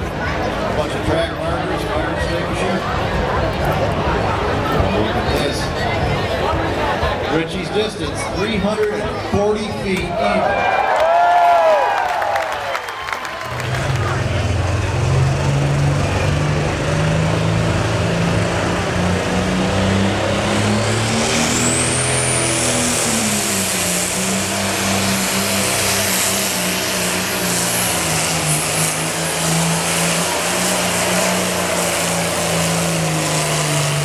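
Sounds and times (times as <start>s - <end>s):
tractor engine running hard: 0.0s - 10.1s, 13.2s - 34.0s
high turbo whine: 12.5s - 34.0s.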